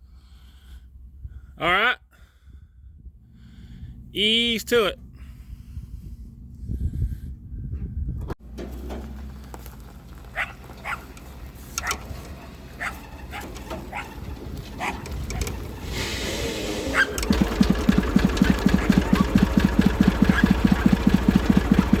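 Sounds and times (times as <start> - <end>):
low rumble of towed tractor: 2.3 - 4.2, 5.0 - 22.0
diesel engine knocking: 8.2 - 22.0.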